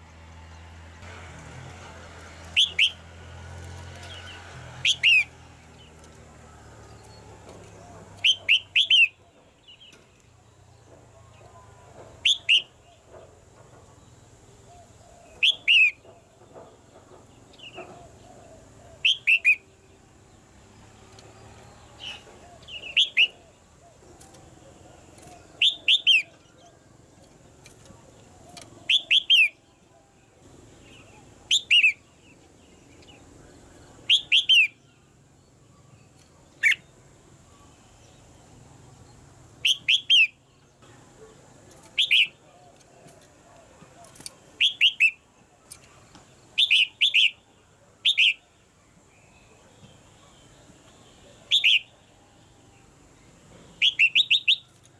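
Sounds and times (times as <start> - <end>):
bulbul calling: 2.5 - 3.0, 4.0 - 5.9, 7.0 - 10.1, 11.1 - 20.1, 21.8 - 29.7, 30.7 - 35.0, 35.7 - 38.3, 39.6 - 48.6, 49.2 - 52.2, 53.6 - 54.9.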